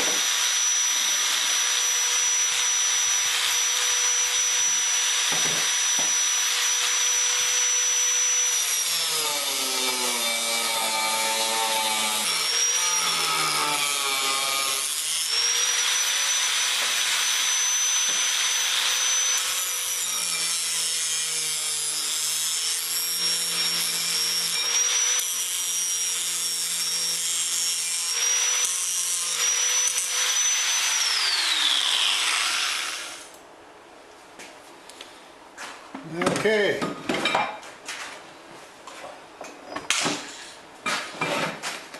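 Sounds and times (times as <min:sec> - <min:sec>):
angle grinder cutting metal pipe: 0:00.0 - 0:33.4.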